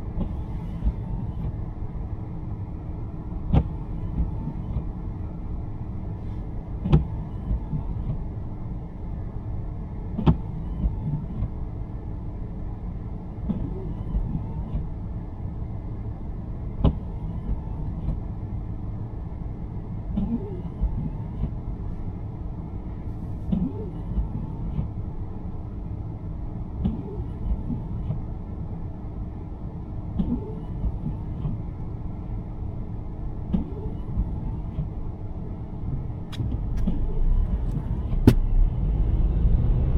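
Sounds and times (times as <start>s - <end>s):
car road and engine rumble: 0.0s - 39.9s
windshield wipers click and swish: 3.5s - 4.9s, 6.8s - 8.2s, 10.2s - 11.6s, 36.3s - 38.5s.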